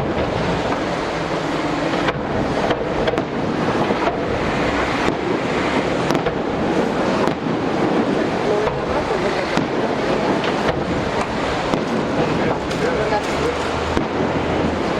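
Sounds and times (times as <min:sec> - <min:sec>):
sharp firework cracks: 0:00.0 - 0:14.3
fireworks crackling and exploding: 0:00.0 - 0:14.9.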